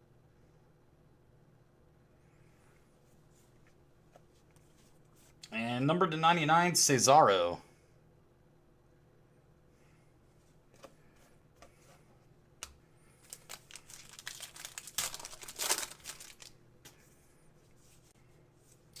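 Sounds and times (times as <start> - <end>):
wrapper tearing and crinkling: 13.2 - 16.6.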